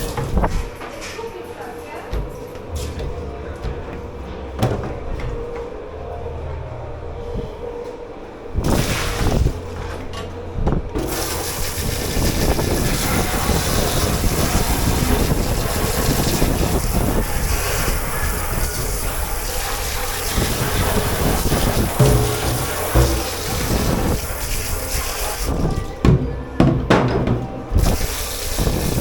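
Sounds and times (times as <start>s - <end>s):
low machine hum: 2.1s - 8.7s, 9.4s - 12.2s, 16.8s - 27.8s
water spraying: 11.0s - 26.0s, 27.3s - 29.0s.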